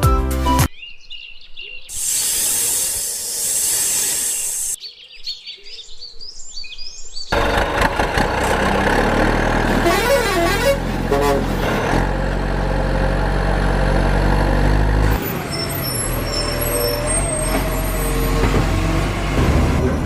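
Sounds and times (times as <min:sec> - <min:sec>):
truck engine rumbling: 0:07.3 - 0:20.0.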